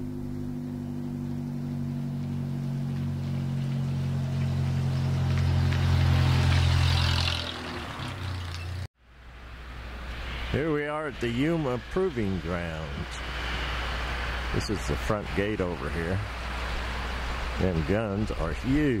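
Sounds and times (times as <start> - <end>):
car engine driving past: 0.0 - 10.7.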